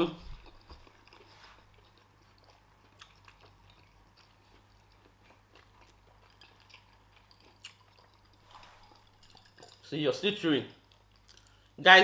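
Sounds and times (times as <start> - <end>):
faint chewing: 0.0 - 10.0, 10.7 - 11.8
steady low hum: 0.0 - 12.0.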